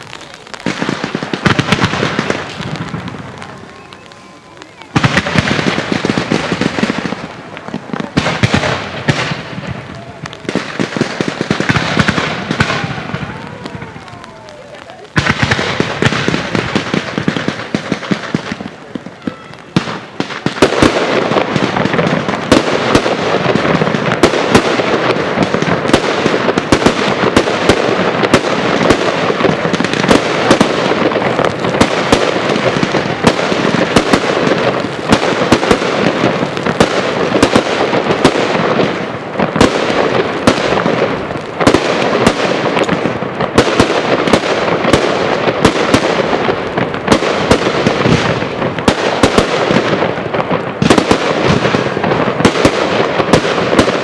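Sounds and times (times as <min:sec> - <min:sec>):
firework bangs: 0:00.0 - 0:54.0
fireworks crackle: 0:00.0 - 0:54.0.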